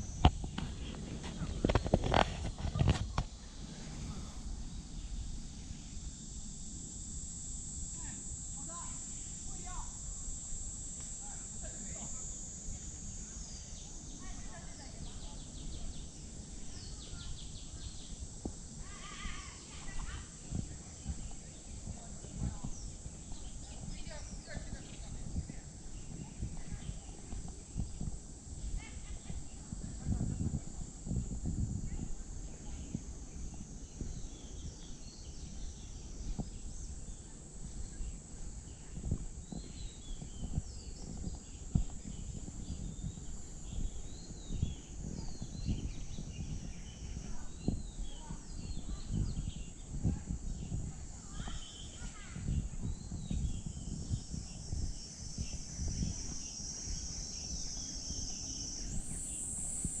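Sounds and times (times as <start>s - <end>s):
high-pitched insect drone: 0.0s - 60.0s
birds chirping: 33.6s - 60.0s.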